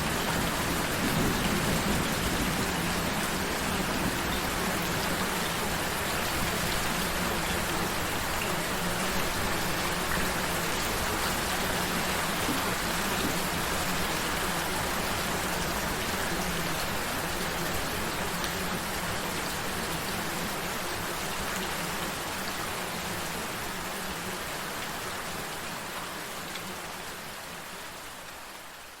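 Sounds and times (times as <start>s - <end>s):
gentle rain: 0.0s - 29.0s.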